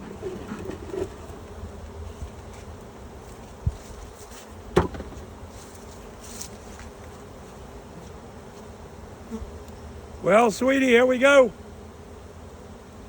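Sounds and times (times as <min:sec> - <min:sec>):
honeybees buzzing: 0:00.0 - 0:13.0
sharp knocks: 0:04.8 - 0:05.3.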